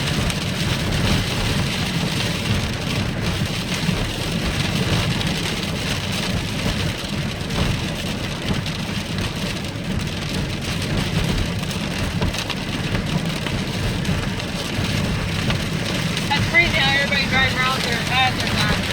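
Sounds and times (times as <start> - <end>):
low rumble of car: 0.0 - 18.9
rain hitting a car: 0.0 - 18.9.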